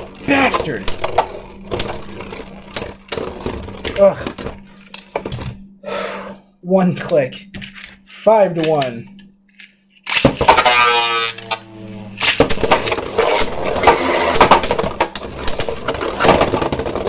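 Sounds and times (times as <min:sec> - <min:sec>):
spinning top launcher whir: 0:00.0 - 0:05.4, 0:10.0 - 0:17.0
spinning tops clashing and rattling: 0:08.6 - 0:11.5, 0:12.1 - 0:17.0.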